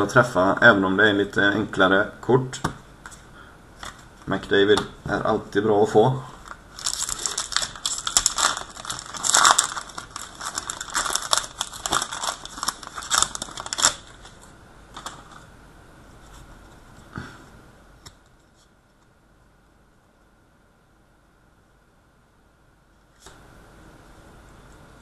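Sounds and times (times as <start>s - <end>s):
foil wrapper tearing and crinkling: 6.4s - 15.4s.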